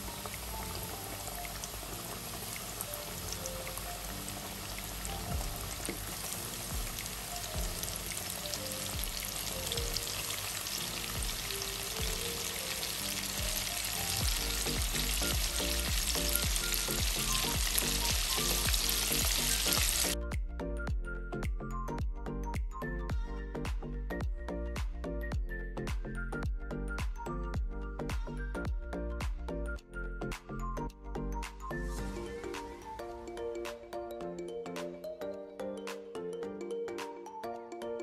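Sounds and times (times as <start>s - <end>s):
deep-frying sizzle and bubbling: 0.0s - 20.2s
background music: 0.0s - 38.0s.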